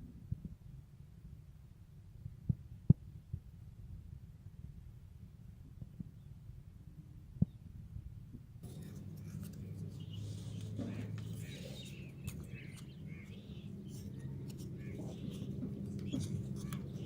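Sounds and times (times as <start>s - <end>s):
low steady hum: 0.0s - 17.0s
small birds chirping: 8.6s - 17.0s.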